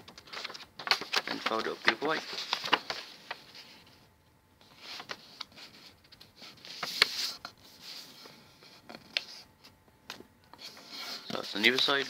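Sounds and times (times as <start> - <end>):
paper being folded and creased: 0.0 - 4.0, 4.6 - 9.7, 10.5 - 12.0.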